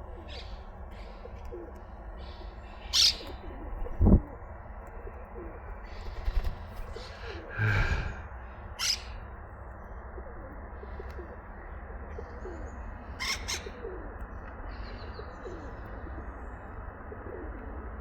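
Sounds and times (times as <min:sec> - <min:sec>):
bird squawk: 0:02.3 - 0:03.7, 0:08.8 - 0:09.2, 0:12.2 - 0:14.0
low falling bird coos: 0:17.0 - 0:18.0.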